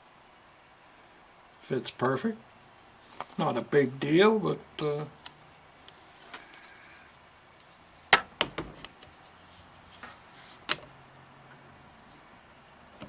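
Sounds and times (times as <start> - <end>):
hard parts clicking and knocking: 8.1 - 9.1.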